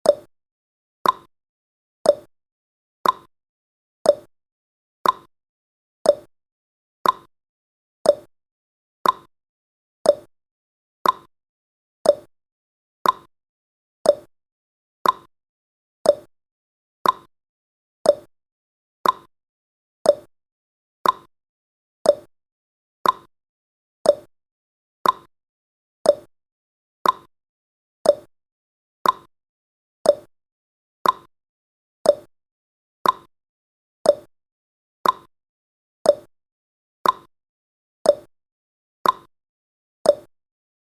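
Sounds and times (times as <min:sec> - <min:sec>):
countdown timer ticking: 0:08.1 - 0:08.3, 0:10.1 - 0:10.3, 0:12.1 - 0:12.3, 0:14.1 - 0:14.3, 0:16.1 - 0:16.3, 0:18.1 - 0:18.3, 0:20.1 - 0:20.3, 0:22.0 - 0:22.3, 0:24.1 - 0:24.3, 0:25.0 - 0:25.3, 0:26.0 - 0:26.3, 0:27.0 - 0:27.3, 0:28.0 - 0:28.3, 0:29.0 - 0:29.3, 0:30.1 - 0:30.3, 0:31.0 - 0:31.3, 0:32.1 - 0:32.3, 0:33.0 - 0:33.3, 0:34.1 - 0:34.3, 0:35.0 - 0:35.3, 0:36.1 - 0:36.3, 0:37.0 - 0:37.3, 0:38.1 - 0:38.3, 0:39.0 - 0:39.3, 0:40.1 - 0:40.3.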